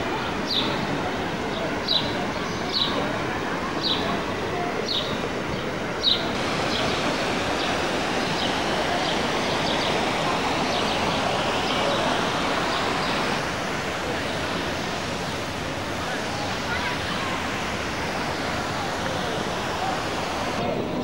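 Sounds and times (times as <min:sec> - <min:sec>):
outdoor ambient hiss: 0:00.0 - 0:21.0.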